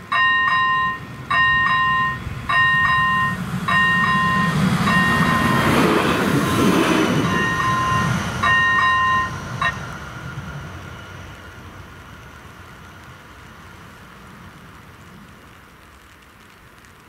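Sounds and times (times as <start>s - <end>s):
train rumbling past: 0.0s - 15.5s
electronic crossing bell dinging: 0.1s - 5.9s, 7.2s - 9.8s.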